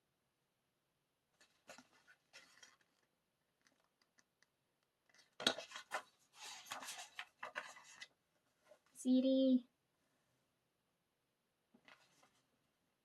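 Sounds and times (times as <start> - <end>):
paper and plastic clatter: 1.4 - 3.9, 5.1 - 8.1.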